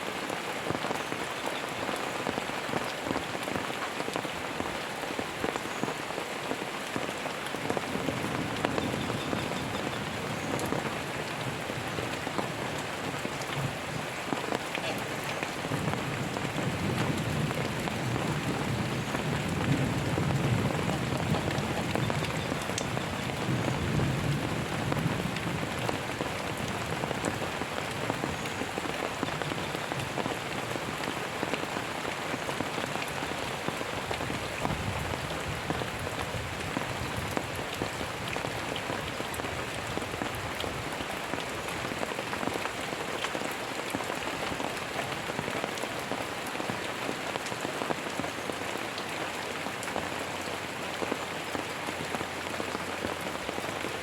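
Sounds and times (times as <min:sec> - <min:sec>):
steady rain falling: 0:00.0 - 0:54.0
thunder rumbling: 0:15.1 - 0:28.3.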